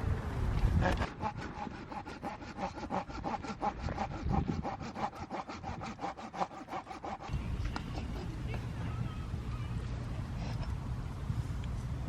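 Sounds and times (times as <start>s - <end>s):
hand saw cutting wood: 0.8s - 7.4s.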